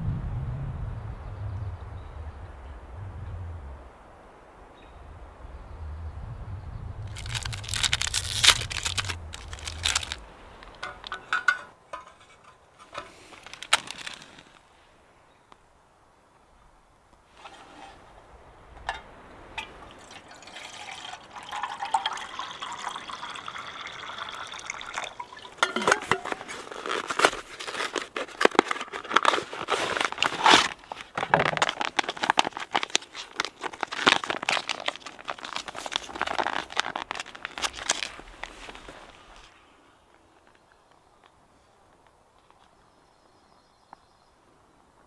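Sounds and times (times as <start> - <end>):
plastic packaging crinkling: 7.1 - 11.2, 12.9 - 14.6, 25.2 - 39.4
water pouring: 18.9 - 27.1.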